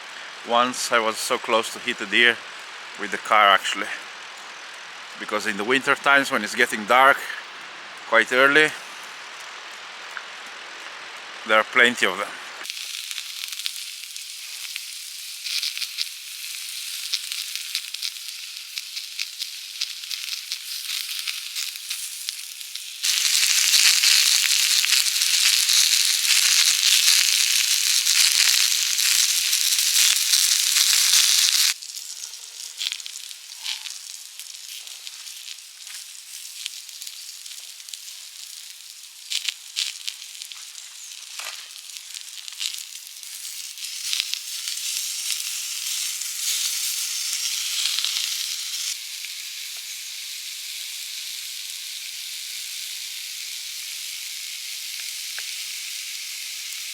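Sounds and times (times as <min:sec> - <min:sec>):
tyres hissing on road: 0:00.0 - 0:12.7.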